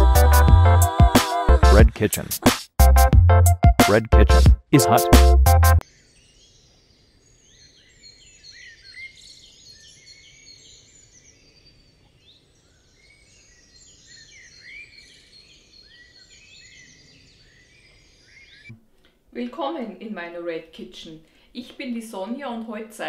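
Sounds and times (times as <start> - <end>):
small songbirds chirping: 5.8 - 18.7.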